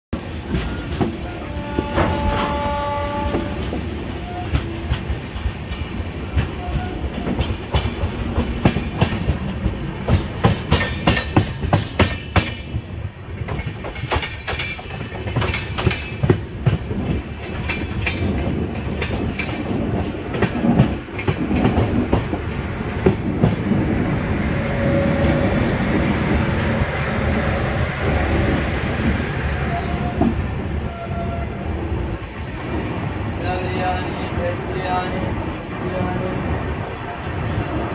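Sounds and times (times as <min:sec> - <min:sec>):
train wheels clickety-clack: 0:00.2 - 0:37.9
horn-like tone: 0:01.2 - 0:04.6, 0:24.6 - 0:25.7.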